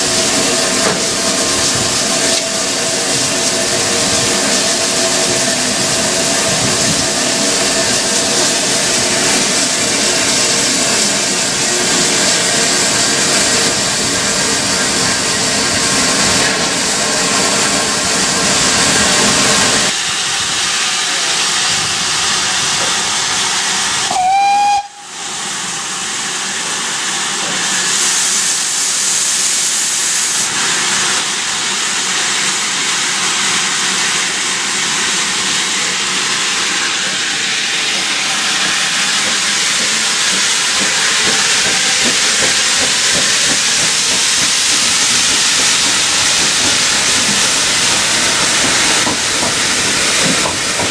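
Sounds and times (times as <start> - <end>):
steam hissing: 0.0 - 50.9
steam locomotive whistle: 24.1 - 25.4.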